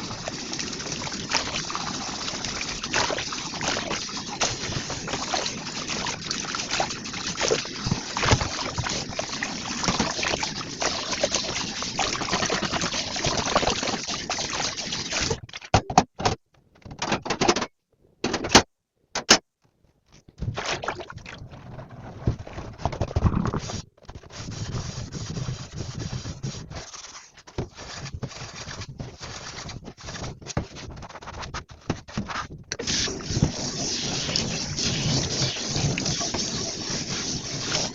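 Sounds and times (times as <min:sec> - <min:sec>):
tap water running into sink: 0:00.0 - 0:15.4
splashing and rinsing: 0:00.0 - 0:15.5, 0:20.4 - 0:23.8, 0:32.2 - 0:37.9.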